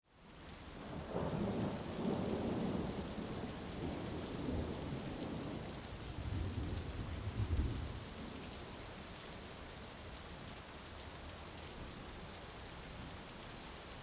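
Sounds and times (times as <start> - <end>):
heavy rain falling: 0.1 - 14.0
rolling thunder: 6.2 - 8.0.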